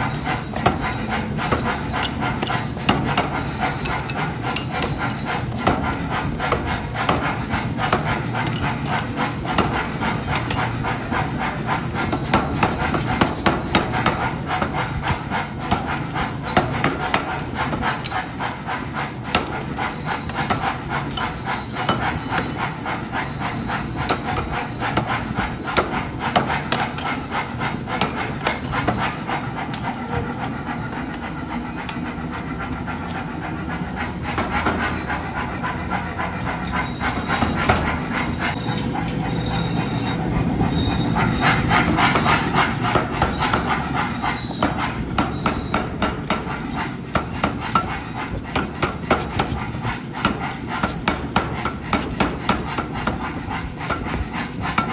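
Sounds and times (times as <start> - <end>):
hammer striking hot steel: 0.0 - 54.9
scraping on steel: 0.0 - 54.9.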